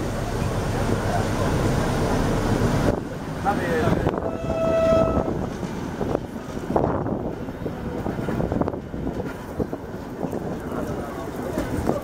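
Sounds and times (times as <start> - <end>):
train wheel and rail rumble: 0.0 - 12.0
wind buffeting microphone: 3.8 - 12.0.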